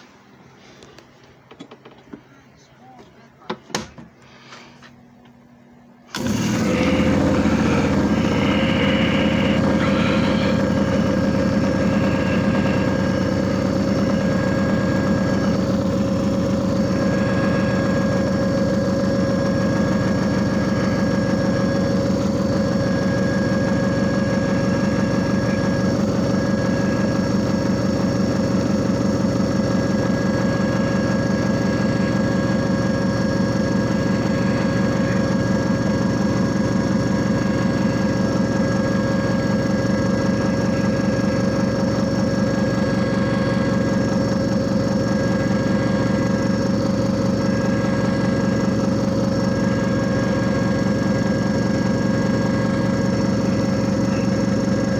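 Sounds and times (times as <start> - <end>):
constant machine whine: 0.0 - 54.9
machine motor humming: 6.1 - 54.9.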